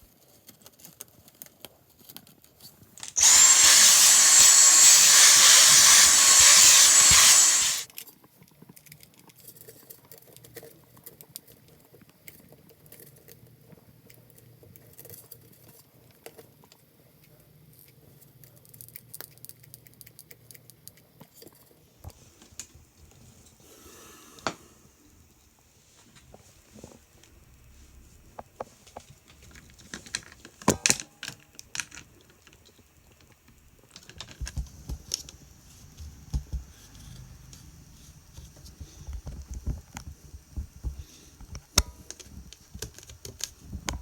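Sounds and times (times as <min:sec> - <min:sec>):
power drill running: 0:03.0 - 0:07.9
faint clicks and handling noises: 0:28.3 - 0:37.7.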